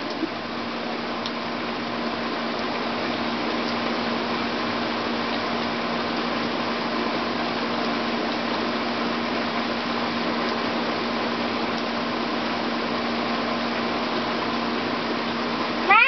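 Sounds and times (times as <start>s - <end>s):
constant low hum: 0.0s - 16.0s
rain falling: 0.0s - 16.0s.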